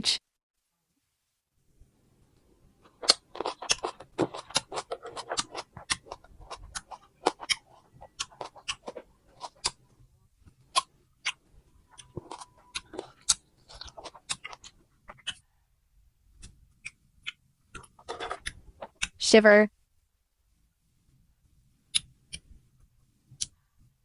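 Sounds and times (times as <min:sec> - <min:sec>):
crunchy fruit being chewed: 0:02.8 - 0:15.4.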